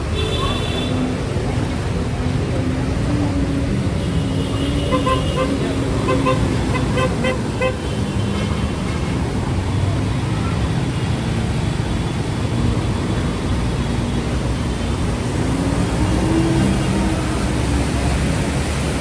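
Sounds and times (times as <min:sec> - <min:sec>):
road traffic engines: 0:00.0 - 0:19.0
vehicle horn short toots: 0:04.6 - 0:07.9.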